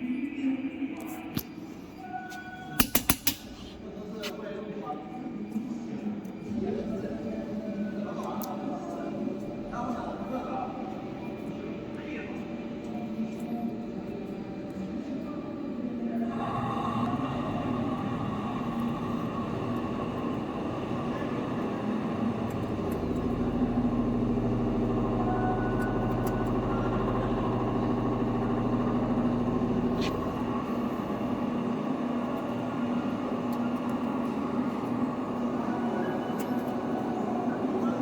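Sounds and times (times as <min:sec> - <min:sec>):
lathe machine hum: 0:16.2 - 0:38.0
deeper drone: 0:16.3 - 0:35.8.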